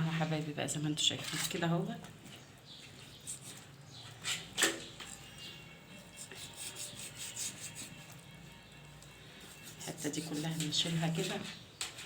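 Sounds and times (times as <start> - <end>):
knife cutting and scraping: 1.2 - 1.6, 3.0 - 5.2, 6.0 - 8.2, 9.4 - 12.0.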